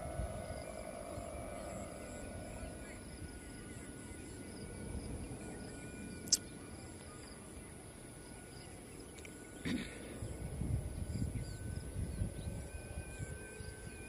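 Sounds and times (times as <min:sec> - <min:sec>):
wind buffeting microphone: 0:00.0 - 0:03.8, 0:09.7 - 0:14.0
faint high-pitched whine: 0:00.0 - 0:14.0.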